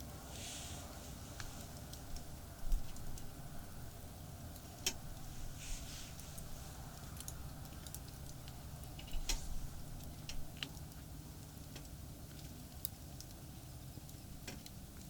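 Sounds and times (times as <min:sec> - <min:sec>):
fire hiss: 0:00.2 - 0:02.1, 0:04.6 - 0:06.8
campfire crackling and popping: 0:01.4 - 0:15.0.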